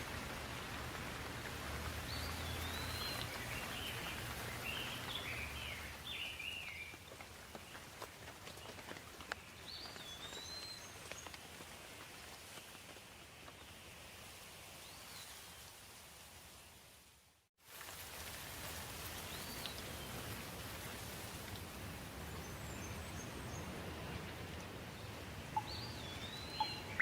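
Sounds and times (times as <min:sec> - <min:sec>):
raindrops ticking: 0:00.0 - 0:13.1
steady rain hiss: 0:00.0 - 0:27.0
songbird chirping: 0:02.0 - 0:07.0, 0:25.0 - 0:27.0.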